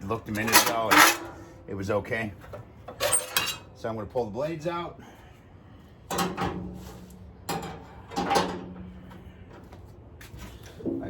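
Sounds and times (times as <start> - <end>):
metal grill grates clanking: 0.0 - 1.5, 2.9 - 3.7, 6.1 - 9.1.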